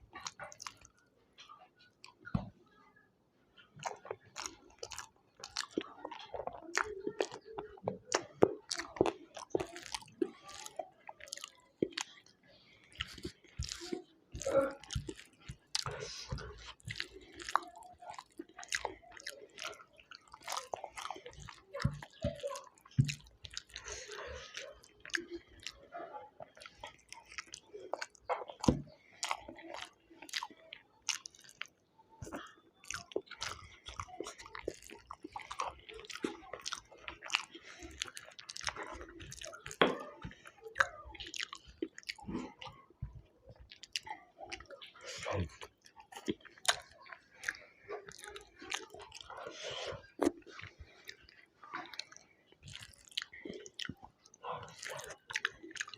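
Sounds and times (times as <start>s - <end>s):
food crunching: 0.0s - 2.4s, 3.6s - 55.9s
person chewing food: 0.0s - 2.6s, 3.6s - 55.9s.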